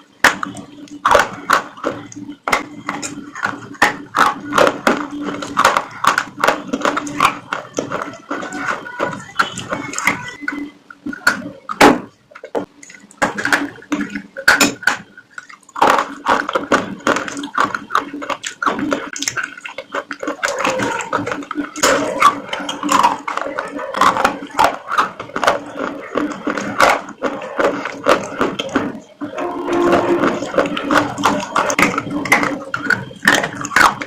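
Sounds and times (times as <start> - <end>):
chewing crunchy food: 0.0 - 34.0.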